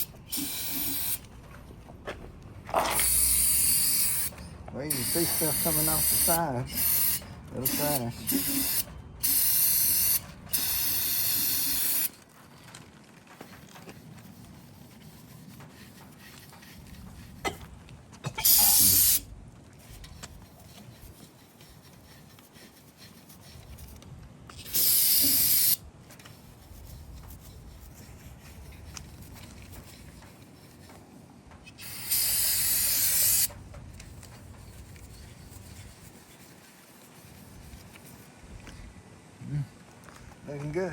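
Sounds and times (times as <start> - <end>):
aerosol spray hissing: 0.0 - 1.2, 3.0 - 12.1, 18.4 - 19.2, 24.6 - 25.8, 31.8 - 33.5.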